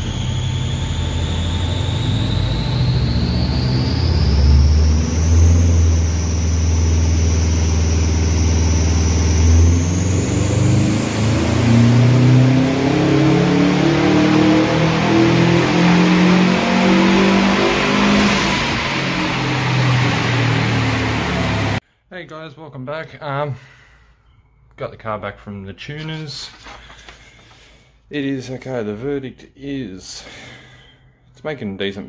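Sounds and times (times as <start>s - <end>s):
high whine: 0.0s - 21.8s
turbocharged engine revving: 0.0s - 21.8s.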